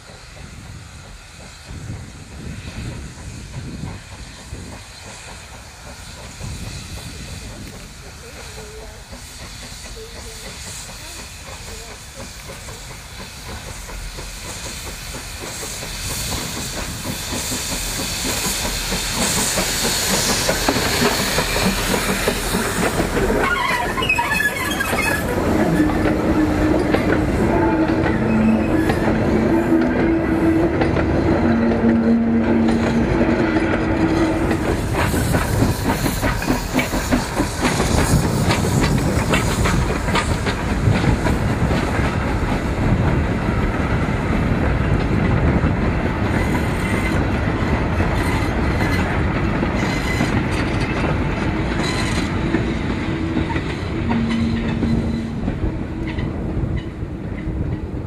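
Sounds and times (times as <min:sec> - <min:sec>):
wagons squealing and creaking: 0:22.5 - 0:30.8, 0:51.7 - 0:52.3.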